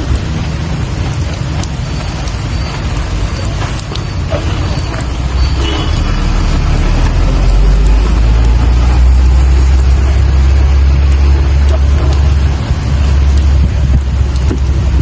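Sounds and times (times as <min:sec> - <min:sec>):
deep rumble: 0:00.0 - 0:15.0
steady rain hiss: 0:00.0 - 0:15.0
faint drop ticks: 0:01.2 - 0:05.2.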